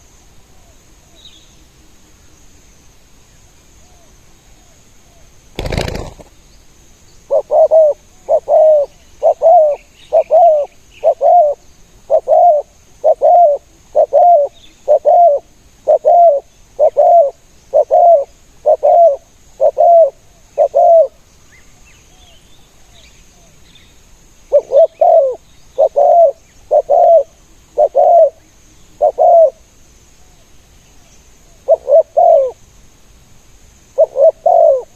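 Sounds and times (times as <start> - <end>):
dove cooing: 5.6 - 6.3, 7.3 - 21.2, 24.5 - 28.4, 29.0 - 29.6, 31.7 - 32.6, 34.0 - 34.9
small birds chirping: 5.6 - 32.6.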